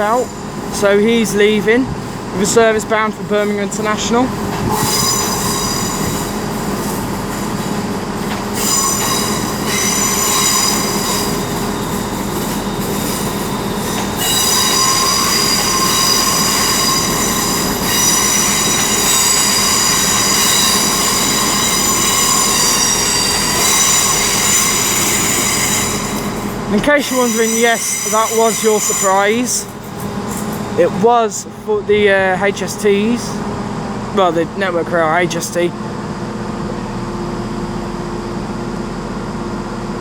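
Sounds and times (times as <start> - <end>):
train wheels squealing on rails: 0.0 - 1.3, 3.4 - 30.6
train running noise: 0.0 - 40.0.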